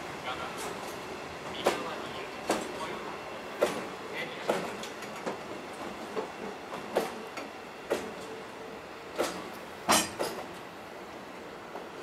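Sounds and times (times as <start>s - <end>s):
freight train rumble: 0.0s - 12.0s
wheels clacking over rail joints: 9.1s - 10.7s.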